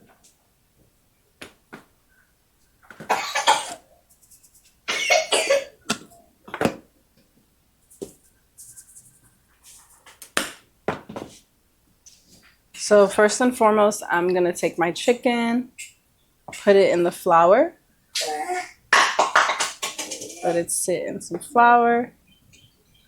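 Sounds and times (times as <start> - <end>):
person coughing: 3.1 - 3.8, 4.9 - 5.8.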